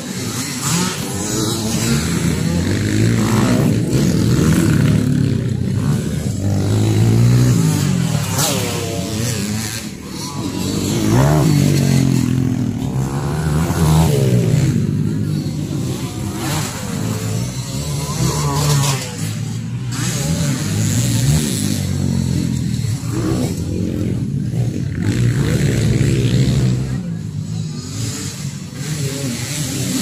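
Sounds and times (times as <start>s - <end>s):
motocross bike engines revving: 0.0s - 30.0s.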